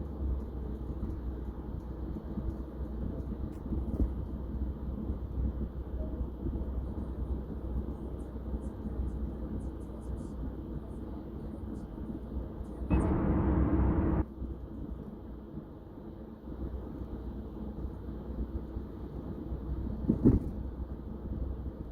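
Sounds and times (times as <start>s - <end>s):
car cabin low rumble: 12.7s - 14.2s
loud rush of noise: 12.9s - 14.2s.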